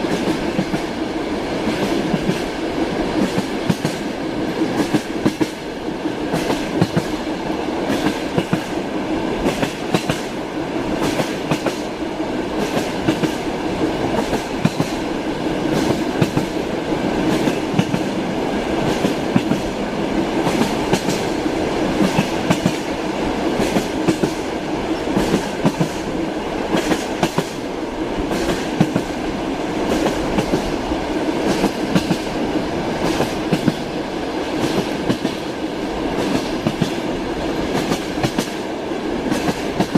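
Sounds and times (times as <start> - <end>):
rolling rumble of railway car: 0.0 - 39.9
train wheels clacking over rail joints: 3.2 - 5.6, 6.2 - 7.3, 7.9 - 8.8, 9.4 - 10.3, 11.0 - 12.0, 12.6 - 13.4, 14.1 - 16.6, 17.2 - 18.2, 18.8 - 19.8, 20.4 - 22.9, 23.5 - 26.1, 26.7 - 27.6, 28.3 - 29.2, 31.4 - 32.4, 33.0 - 34.0, 34.6 - 39.9.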